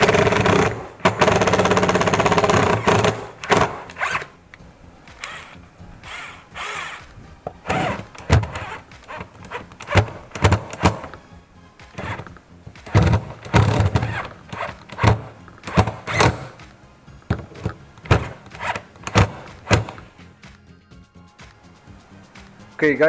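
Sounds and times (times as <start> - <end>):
cordless drill driving screw: 0.0 - 4.3, 5.2 - 11.2, 12.0 - 16.6, 17.6 - 20.1
drill clicks: 0.0 - 4.3, 5.1 - 11.2, 12.0 - 16.6, 17.3 - 20.1.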